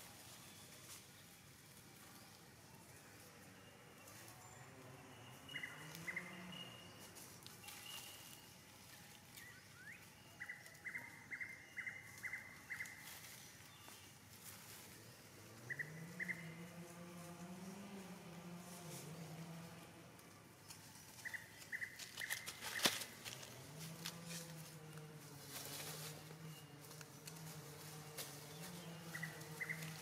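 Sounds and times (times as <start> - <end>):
dry leaves crackling: 3.5 - 30.0
bird chirping: 4.4 - 8.7, 9.3 - 14.2, 15.1 - 16.7, 20.6 - 23.6, 28.5 - 30.0.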